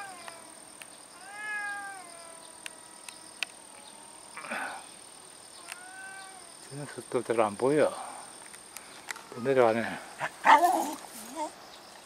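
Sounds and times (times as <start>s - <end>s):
cat yowling: 0.0s - 0.4s, 1.2s - 3.1s, 5.6s - 6.5s.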